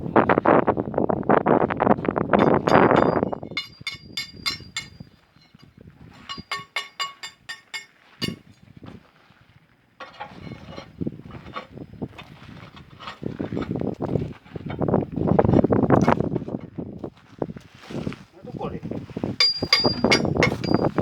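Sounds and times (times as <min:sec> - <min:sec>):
hammer blows on steel: 0:02.4 - 0:08.5, 0:19.4 - 0:21.0.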